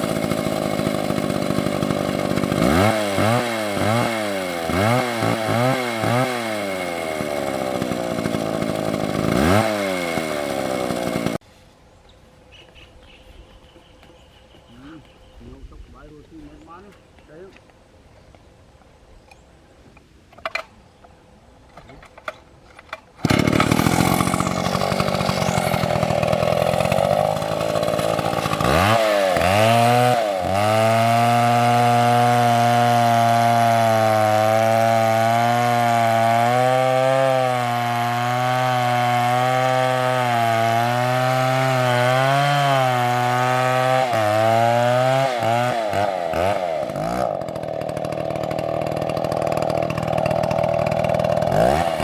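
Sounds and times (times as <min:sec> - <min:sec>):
chainsaw running at high revs: 0:00.0 - 0:11.4, 0:23.2 - 0:52.0.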